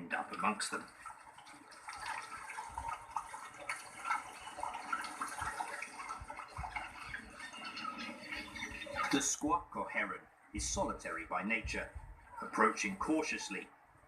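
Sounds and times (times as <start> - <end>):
shallow water splashing and dripping: 0.0 - 10.0
soft low thuds: 11.6 - 12.3.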